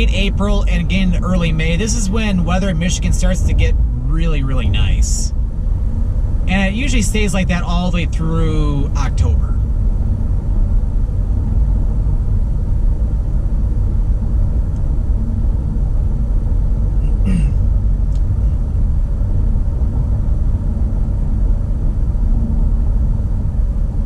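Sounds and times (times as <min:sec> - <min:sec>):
car tyre and engine rumble: 0:00.0 - 0:24.0.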